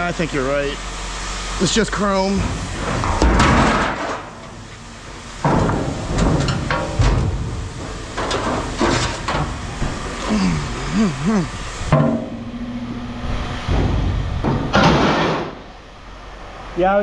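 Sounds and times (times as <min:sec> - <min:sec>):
scrap metal clanking: 0:02.4 - 0:10.3.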